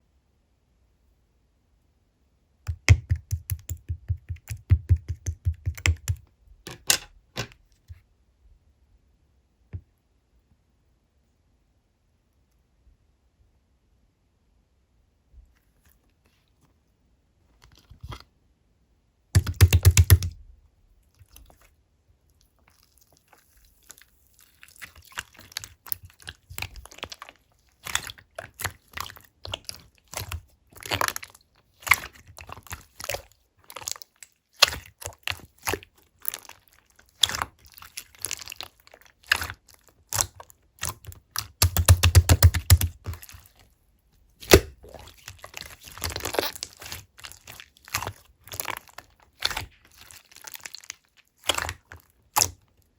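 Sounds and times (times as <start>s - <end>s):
slime squishing: 2.7s - 7.6s, 19.4s - 20.3s, 21.0s - 21.7s, 22.3s - 52.9s
slime sticky clicks and pops: 19.4s - 20.3s, 40.1s - 43.4s, 44.4s - 45.1s.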